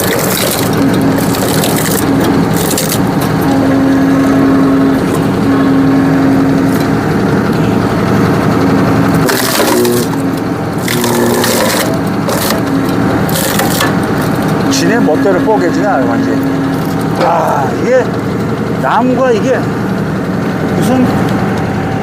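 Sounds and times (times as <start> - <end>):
wood cracking and splintering: 0.0 - 3.4, 9.2 - 14.6
tractor engine humming: 0.0 - 22.0.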